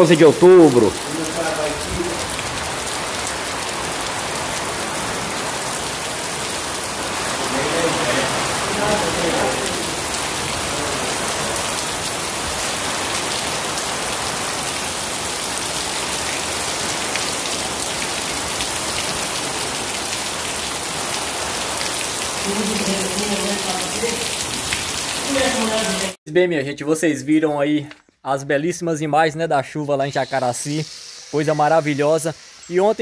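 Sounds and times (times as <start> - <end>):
heavy rain splashing on concrete: 0.0 - 26.2.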